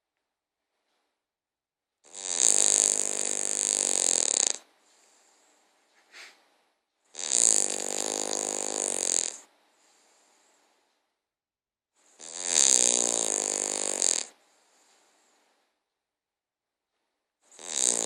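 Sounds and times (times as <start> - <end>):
dog snoring: 2.0 - 11.1, 12.0 - 15.8, 17.4 - 18.0.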